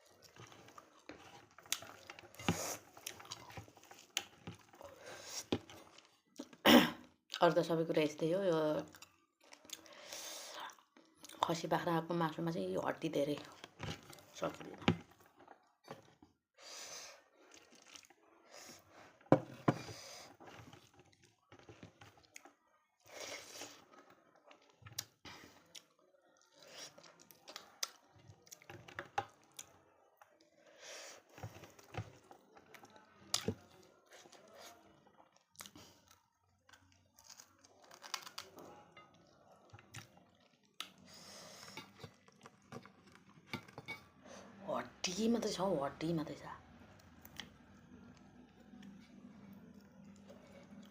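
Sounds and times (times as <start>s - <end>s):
chewing and gnawing: 0.0s - 6.6s, 8.8s - 10.0s, 13.4s - 16.3s, 17.4s - 30.6s, 31.3s - 43.8s, 47.0s - 50.9s.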